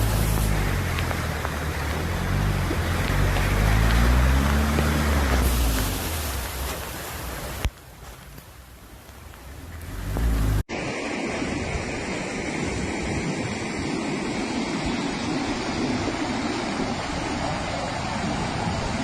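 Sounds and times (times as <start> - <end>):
floodwater rushing: 0.0 - 13.5.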